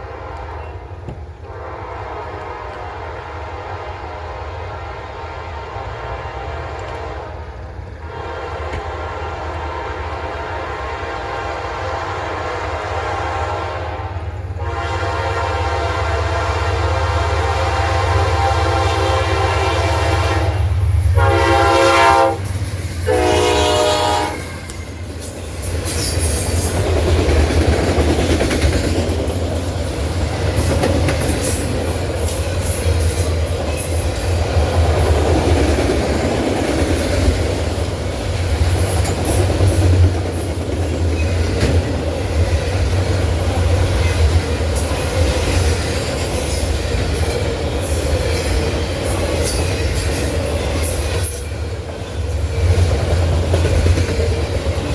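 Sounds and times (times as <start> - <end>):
train wheels clattering on rails: 0.0 - 3.4, 6.5 - 13.0, 14.2 - 54.9
locomotive air horn blasts: 0.0 - 7.3, 8.1 - 24.8.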